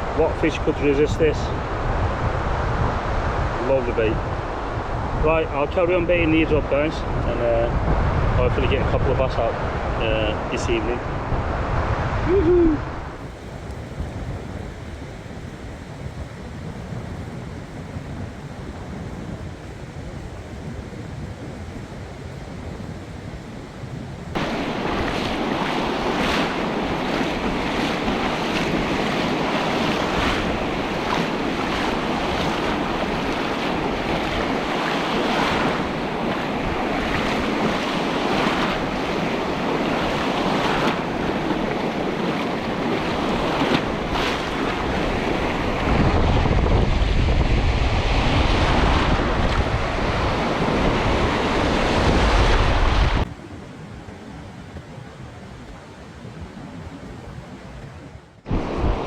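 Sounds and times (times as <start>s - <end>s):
sea waves washing on shore: 0.0s - 59.0s
wind buffeting microphone: 0.0s - 59.0s.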